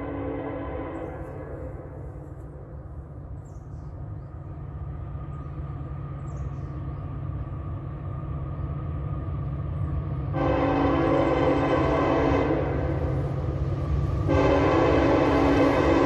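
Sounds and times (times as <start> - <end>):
locomotive horn chord: 0.0 - 2.4, 10.3 - 16.0
diesel train rumble: 0.0 - 16.0.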